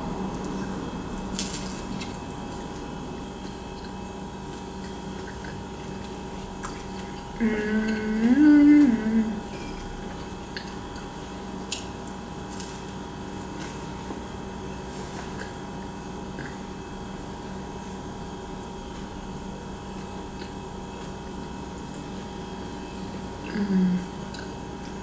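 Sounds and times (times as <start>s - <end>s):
background hum: 0.0s - 25.0s
person chewing: 0.3s - 8.0s, 9.5s - 14.2s.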